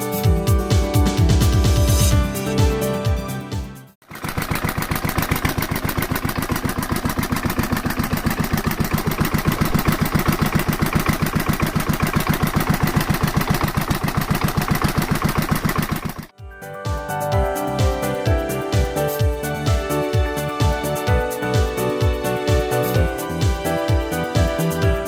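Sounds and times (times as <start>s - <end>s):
diesel engine running: 4.0s - 16.3s.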